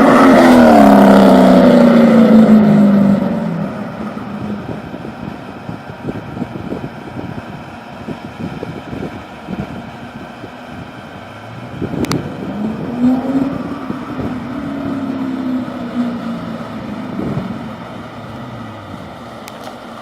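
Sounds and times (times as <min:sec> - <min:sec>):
car engine driving by: 0:00.0 - 0:05.8, 0:10.7 - 0:20.0
wind buffeting microphone: 0:00.0 - 0:19.6.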